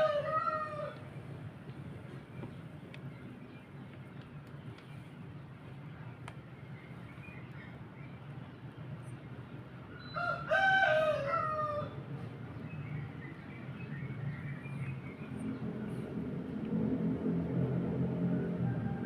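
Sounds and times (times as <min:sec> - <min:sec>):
rooster crowing: 0:00.0 - 0:01.0, 0:10.1 - 0:12.0, 0:18.4 - 0:19.0.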